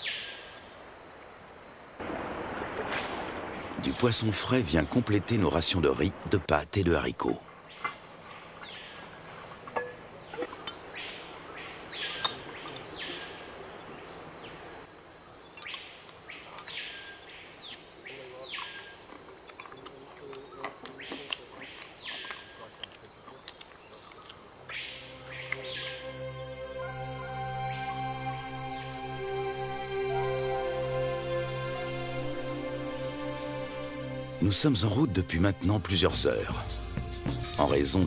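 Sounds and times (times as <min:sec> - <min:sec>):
insects humming: 0:00.0 - 0:38.0
bird whistled calls: 0:24.7 - 0:26.1.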